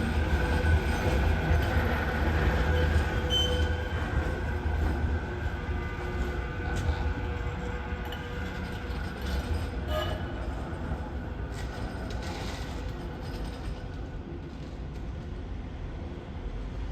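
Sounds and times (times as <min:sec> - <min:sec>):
tram rumbling: 0:00.0 - 0:16.9.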